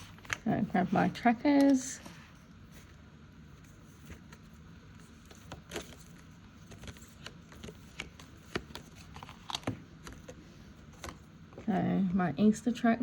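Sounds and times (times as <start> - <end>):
paper rustling and tapping: 5.2 - 11.2.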